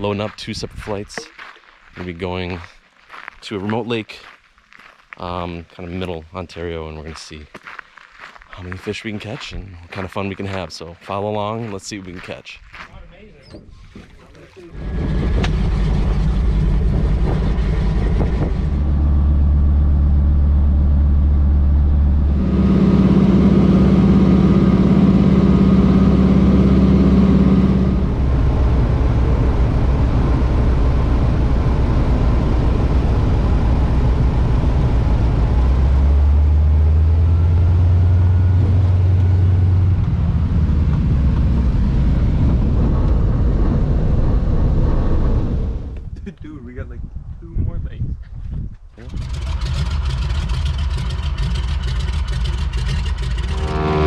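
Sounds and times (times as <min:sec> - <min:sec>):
plane engine and propeller: 0:14.5 - 0:46.1, 0:49.0 - 0:54.0.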